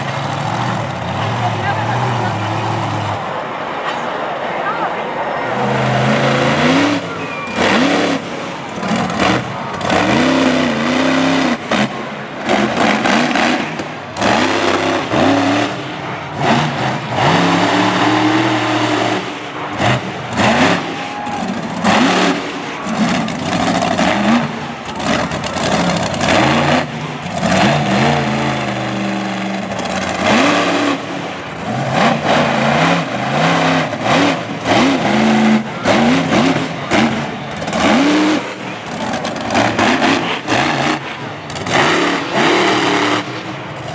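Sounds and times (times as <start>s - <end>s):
monster truck engine revving: 0.0s - 43.9s.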